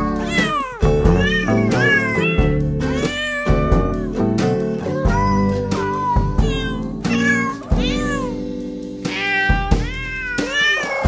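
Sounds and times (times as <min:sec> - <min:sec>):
heavy bass hits: 0:00.0 - 0:05.2
music made of cat meows: 0:00.0 - 0:11.0.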